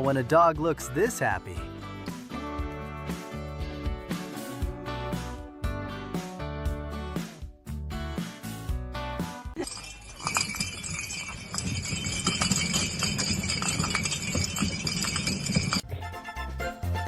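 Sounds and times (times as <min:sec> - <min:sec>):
background music: 0:00.0 - 0:09.9, 0:15.8 - 0:17.0
jingling and rattling: 0:09.6 - 0:15.8.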